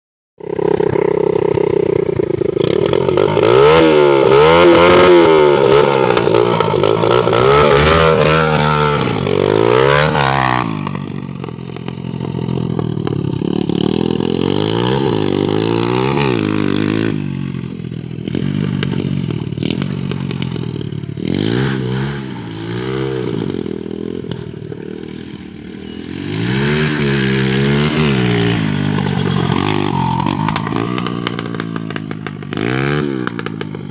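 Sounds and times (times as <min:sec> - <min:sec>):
motorbike engine revving: 0:00.4 - 0:33.9.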